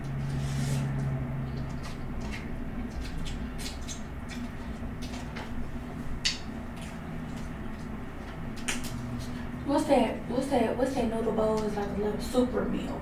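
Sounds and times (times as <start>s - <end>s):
steady low hum: 0.0s - 13.0s
chewing clicks and smacks: 0.9s - 5.6s, 6.2s - 9.4s.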